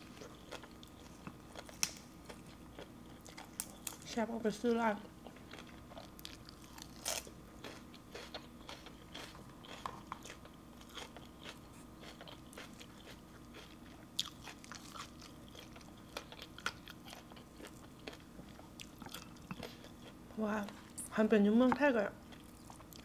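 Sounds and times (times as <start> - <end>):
crunching leafy greens: 5.5 - 18.2.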